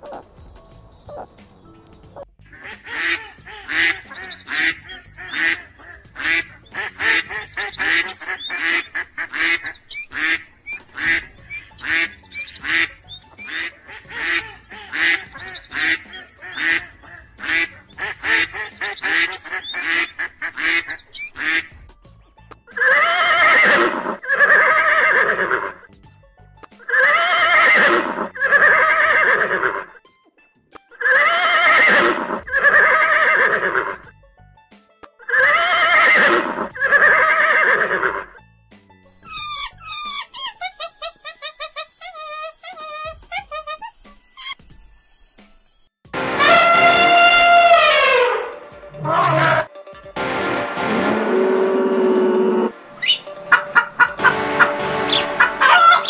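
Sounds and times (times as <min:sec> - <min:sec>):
ducks quacking: 0:02.5 - 0:21.8, 0:46.2 - 0:56.0
horses neighing: 0:22.8 - 0:25.8, 0:26.9 - 0:29.9, 0:31.0 - 0:34.0, 0:35.3 - 0:38.2, 0:49.0 - 0:49.7.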